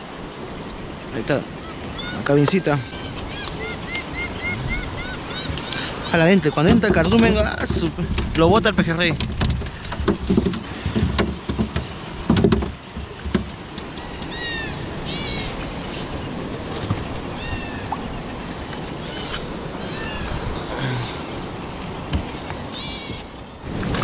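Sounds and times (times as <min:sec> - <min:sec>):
sea: 0:00.0 - 0:24.0
wind: 0:00.0 - 0:24.0
high arching bird calls: 0:01.5 - 0:07.9, 0:14.0 - 0:16.4, 0:17.2 - 0:23.6.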